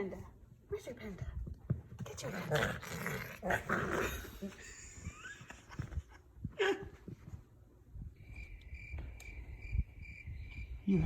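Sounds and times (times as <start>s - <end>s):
cricket chirping: 8.2s - 11.0s.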